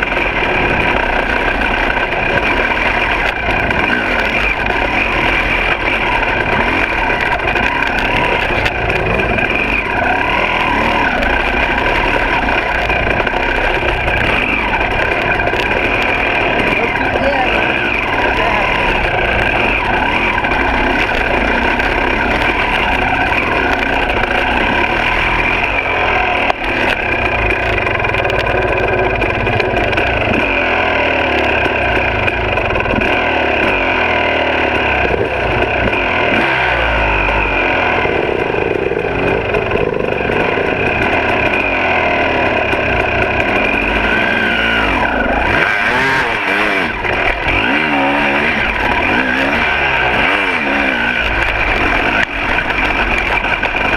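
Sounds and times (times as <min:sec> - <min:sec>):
two-stroke dirt bike engine: 0:00.0 - 0:53.9.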